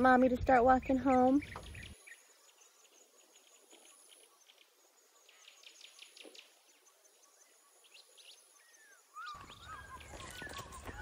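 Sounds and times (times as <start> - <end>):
faint birds chirping: 0.0 - 11.0
bird trills: 1.1 - 11.0.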